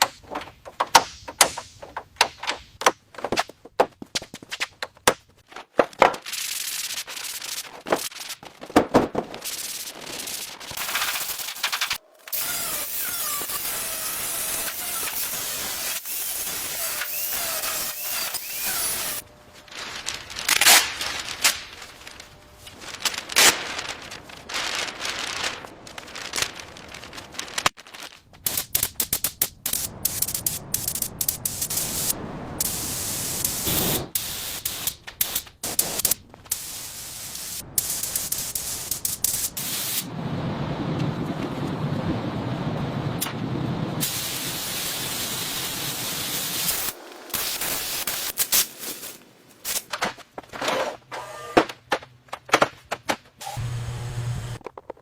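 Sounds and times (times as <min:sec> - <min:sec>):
steady hissing: 0:09.4 - 0:19.2, 0:44.0 - 0:50.0
scraping and rubbing: 0:46.7 - 0:51.0.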